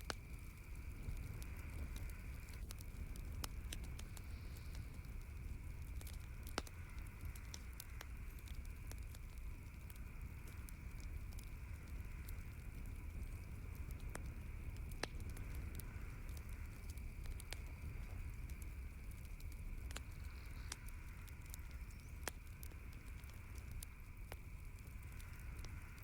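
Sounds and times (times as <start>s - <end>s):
campfire crackling: 0.0s - 26.0s
steady low rumble: 0.0s - 26.0s.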